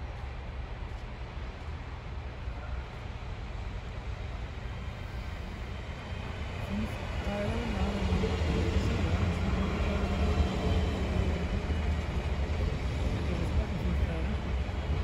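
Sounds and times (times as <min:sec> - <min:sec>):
train rumbling past platform: 0:00.0 - 0:15.0.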